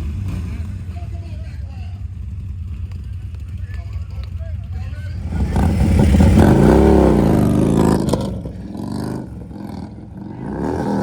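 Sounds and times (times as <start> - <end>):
motorcycle engine revving: 0.0 - 4.0, 4.9 - 11.0.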